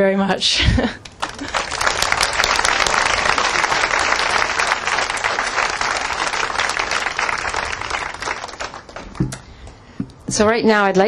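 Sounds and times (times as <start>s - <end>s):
crowd applauding: 1.0s - 9.4s.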